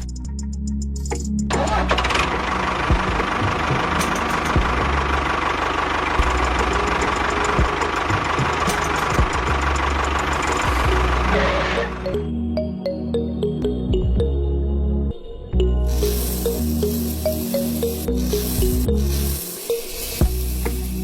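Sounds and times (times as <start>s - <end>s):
background music: 0.0s - 21.0s
small engine running roughly: 1.5s - 12.0s, 15.9s - 21.0s.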